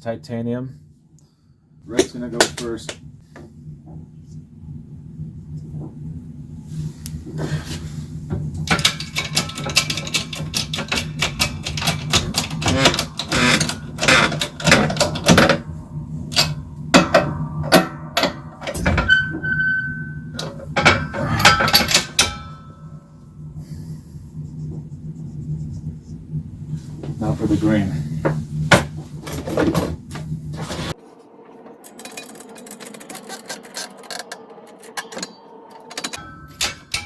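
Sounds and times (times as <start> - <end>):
steady low hum: 0.0 - 37.0
hand tools clicking and knocking: 8.7 - 15.6.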